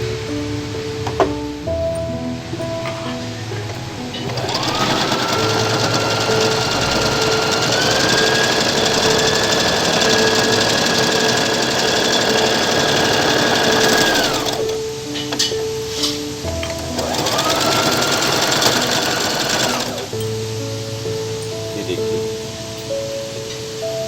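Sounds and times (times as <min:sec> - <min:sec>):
sewing machine motor whine: 0:04.2 - 0:14.8, 0:16.9 - 0:20.1.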